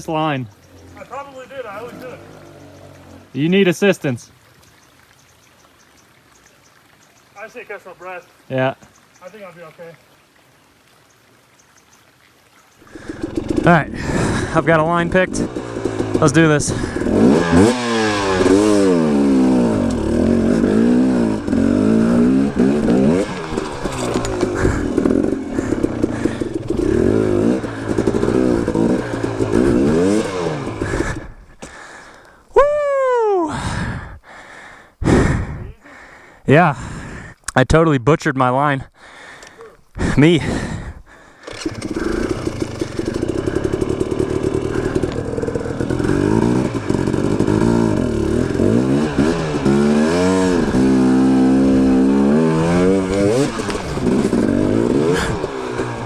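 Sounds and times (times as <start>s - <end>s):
dirt bike engine revving: 0.0s - 3.5s, 12.9s - 31.4s, 41.4s - 56.0s.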